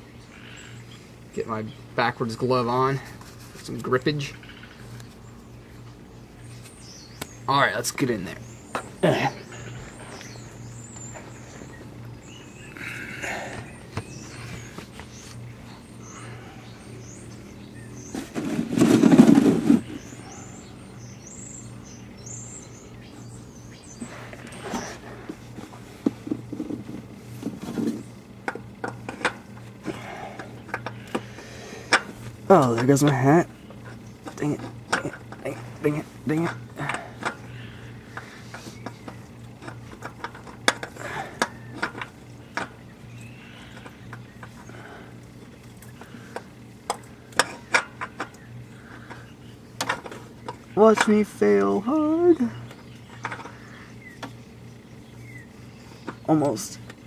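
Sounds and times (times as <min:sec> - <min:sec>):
small birds chirping: 0:00.0 - 0:57.0
steady low hum: 0:00.0 - 0:57.0
loud noisy scrape: 0:18.2 - 0:20.0.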